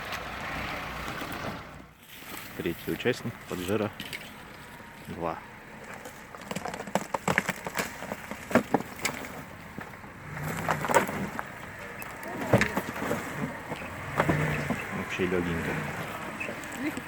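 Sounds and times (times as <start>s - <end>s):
ice cracking and crunching: 5.8s - 14.6s.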